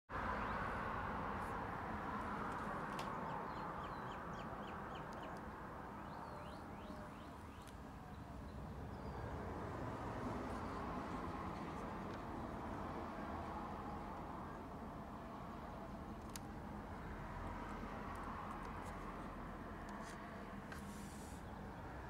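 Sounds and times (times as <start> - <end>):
outdoor background noise: 0.1 - 22.0
bird chirping: 3.1 - 9.5.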